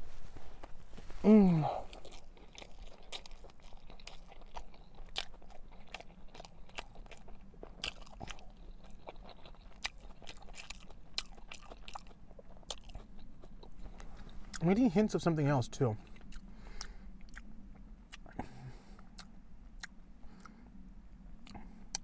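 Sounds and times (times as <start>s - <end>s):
man chewing sandwich: 0.2s - 22.0s.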